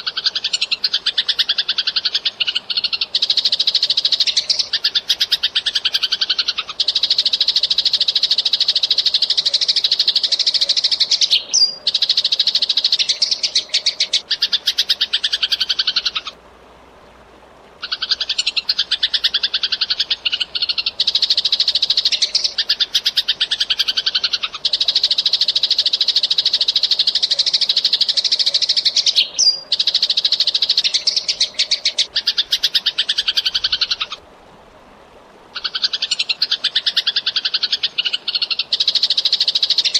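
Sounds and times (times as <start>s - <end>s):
sparrow chirping: 9.4s - 16.3s.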